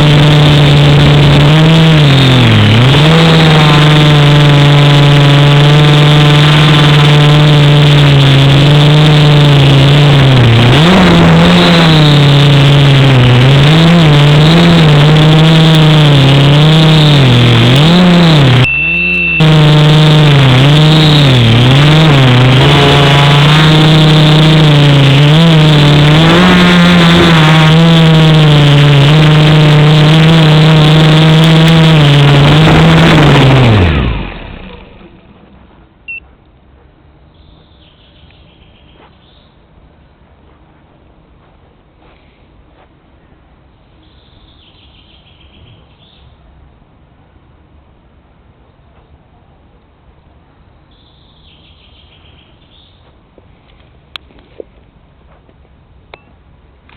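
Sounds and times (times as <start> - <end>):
drone motors whining: 0.0 - 36.2
steady high tone: 18.6 - 21.4.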